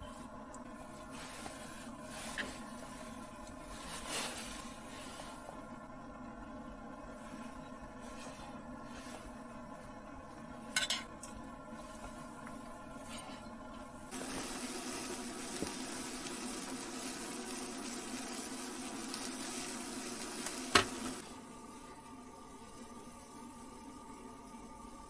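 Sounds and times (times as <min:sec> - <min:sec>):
steady hiss: 0:14.0 - 0:25.0.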